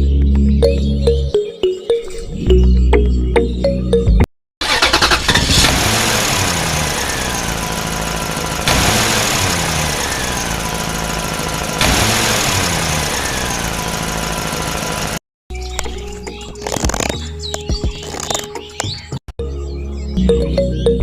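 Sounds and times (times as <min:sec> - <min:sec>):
music: 0:00.0 - 0:04.3, 0:15.5 - 0:21.0
looping engine sound: 0:04.6 - 0:15.2.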